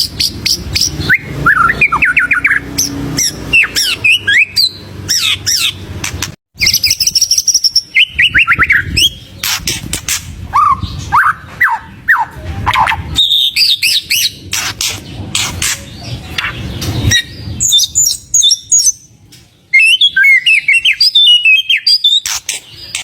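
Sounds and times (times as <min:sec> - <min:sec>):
songbird whistling and chirping: 0:00.0 - 0:05.8, 0:06.6 - 0:23.0.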